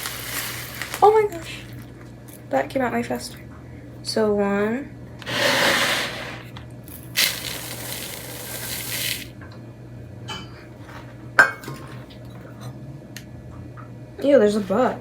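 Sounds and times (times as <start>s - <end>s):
oats pouring into a cup: 0.0s - 1.1s, 5.2s - 9.3s.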